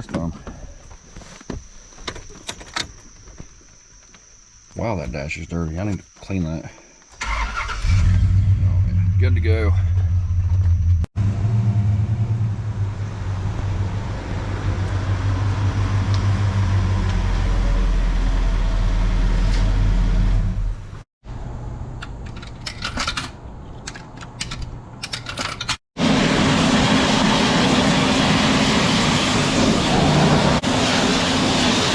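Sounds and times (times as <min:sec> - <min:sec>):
car engine and road noise: 0:07.2 - 0:31.9.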